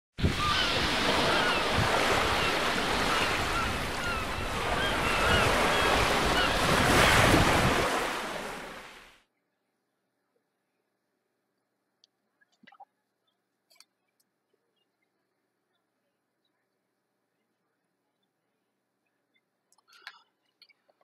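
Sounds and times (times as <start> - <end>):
wind: 0.1 - 21.0
ocean waves on shore: 0.2 - 9.2.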